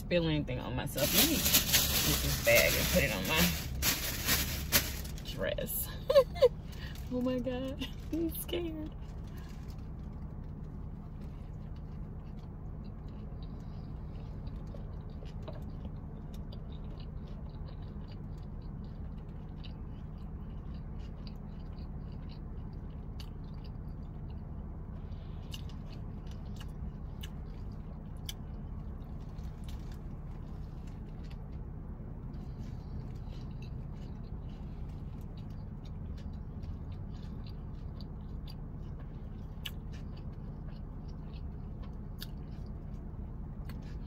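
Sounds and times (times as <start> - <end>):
steady low hum: 0.0 - 44.0
person chewing crunchy food: 9.0 - 44.0.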